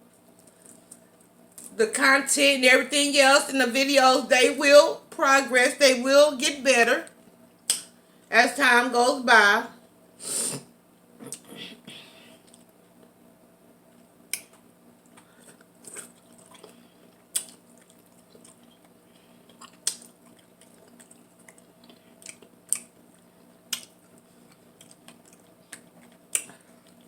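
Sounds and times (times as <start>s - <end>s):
faint steady hum: 0.0s - 27.0s
mouth chewing wet smacks: 14.3s - 18.9s, 19.5s - 27.0s.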